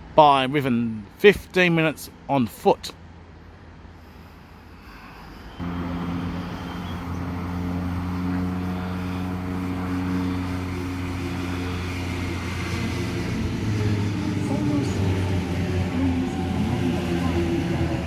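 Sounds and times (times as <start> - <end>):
train low hum: 5.4 - 18.0.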